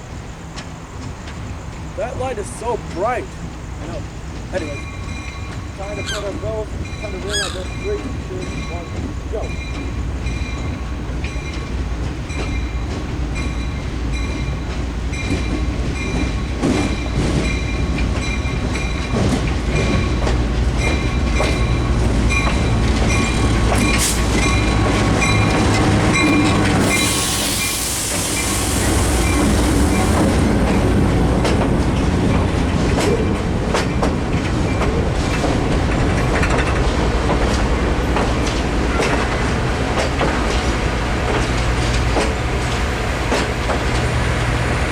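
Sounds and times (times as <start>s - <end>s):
train rumbling past: 0.0s - 44.9s
train wheels clacking on rails: 0.1s - 44.9s
crossing bell dinging: 4.6s - 27.2s
loud hiss of air: 24.0s - 24.4s, 26.8s - 30.5s.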